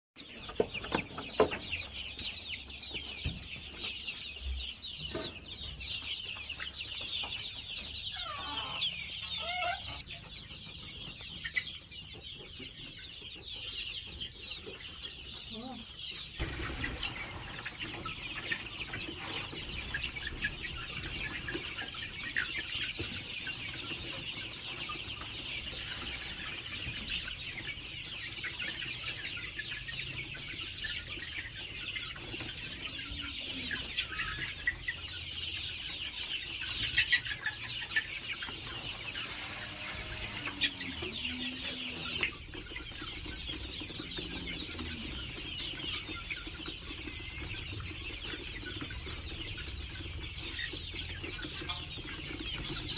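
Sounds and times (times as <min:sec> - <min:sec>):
chicken clucks: 0:00.2 - 0:52.9
chickens cheeping: 0:00.2 - 0:52.9.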